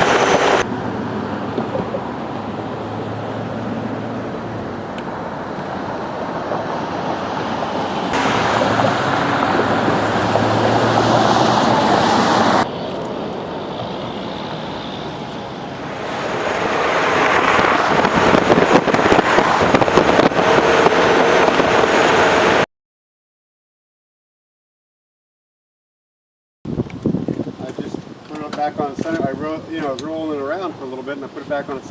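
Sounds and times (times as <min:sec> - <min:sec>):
wind rushing over microphone: 0:00.0 - 0:22.6, 0:26.7 - 0:29.8
motorcycle engine at speed: 0:07.3 - 0:13.0, 0:13.8 - 0:22.6.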